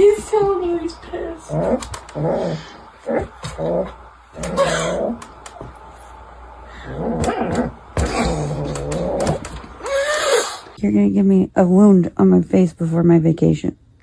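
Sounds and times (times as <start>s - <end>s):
angry cat growling and yowling: 1.5s - 5.3s, 6.8s - 10.8s.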